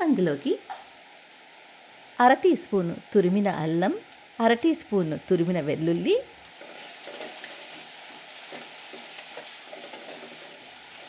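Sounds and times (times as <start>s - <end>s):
onions sizzling in oil: 0.0s - 11.0s
wooden spoon scraping: 6.5s - 11.0s.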